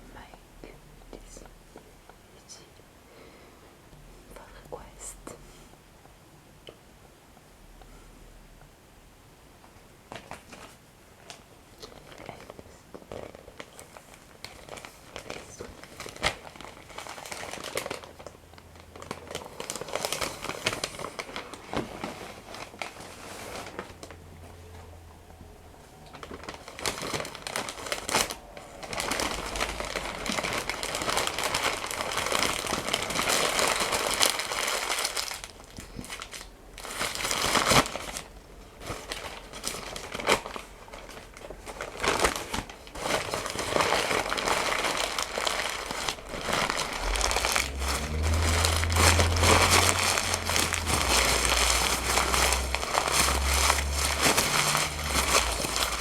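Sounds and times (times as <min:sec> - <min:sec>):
paper crinkling: 0:10.1 - 0:24.2, 0:26.1 - 0:56.0.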